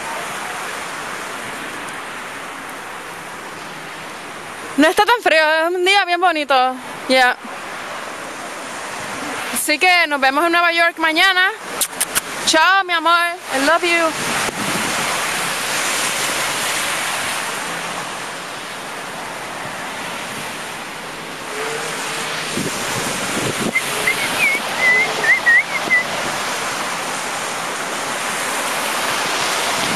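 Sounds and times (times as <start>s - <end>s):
street traffic: 0.0s - 29.9s
wind buffeting microphone: 13.4s - 17.7s, 19.2s - 29.9s
wind rushing: 14.1s - 17.7s, 19.2s - 29.9s
high warbling chirps: 23.7s - 26.1s.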